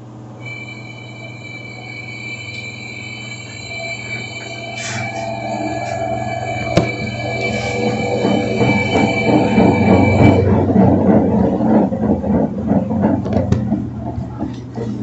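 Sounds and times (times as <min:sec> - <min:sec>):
washing machine humming: 0:00.0 - 0:15.0
high-pitched whine: 0:00.4 - 0:13.0
washing machine rattle: 0:05.4 - 0:15.0.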